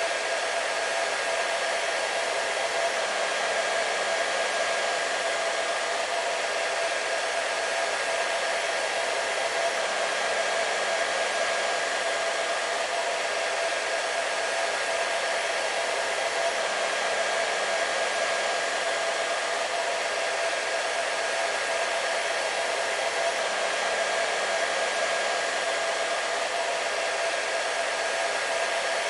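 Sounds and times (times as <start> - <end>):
hair dryer running: 0.0 - 29.0.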